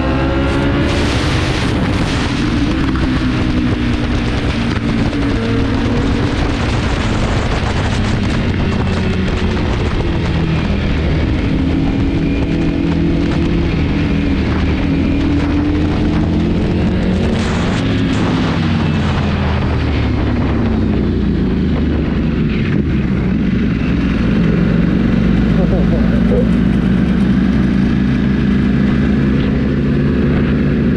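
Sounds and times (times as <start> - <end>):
motorcycle engine revving: 0.0 - 30.9
wind rushing on microphone: 0.0 - 30.9.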